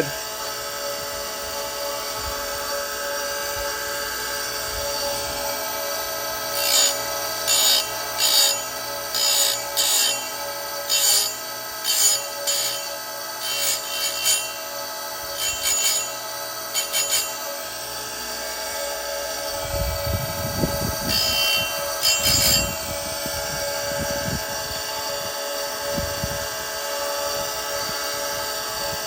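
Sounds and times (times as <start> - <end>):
grinder motor humming: 0.0 - 29.0
grinding wheel rasping on chain: 6.5 - 18.0, 19.5 - 24.2.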